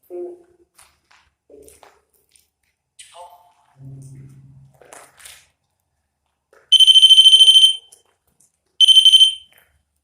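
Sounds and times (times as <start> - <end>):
high-pitched pulsing electronic alarm: 6.8 - 7.8, 8.8 - 9.4.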